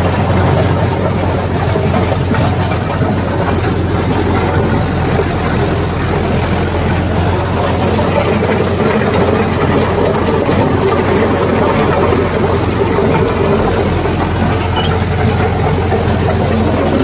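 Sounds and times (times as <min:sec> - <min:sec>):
tractor diesel engine droning: 0:00.0 - 0:17.0.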